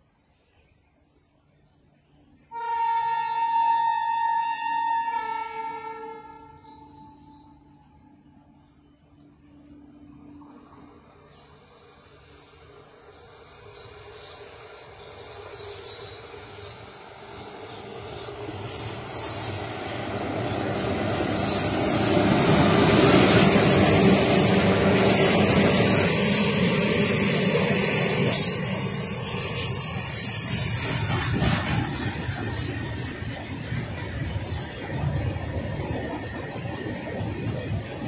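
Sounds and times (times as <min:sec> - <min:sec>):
train wheels on rails: 0:06.7 - 0:38.0
high hiss: 0:11.1 - 0:19.8.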